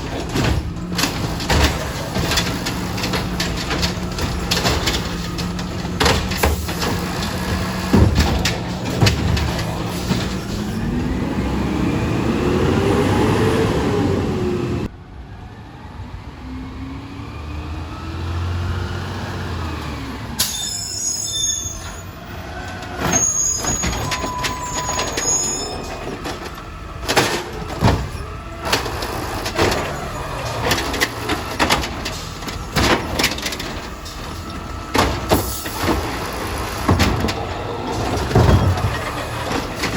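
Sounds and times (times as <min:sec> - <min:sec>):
sharp knocks and bangs: 0:00.0 - 0:10.7, 0:25.9 - 0:39.9
garbage truck engine revving: 0:00.0 - 0:14.9, 0:16.4 - 0:39.9
high squeals: 0:20.4 - 0:26.4.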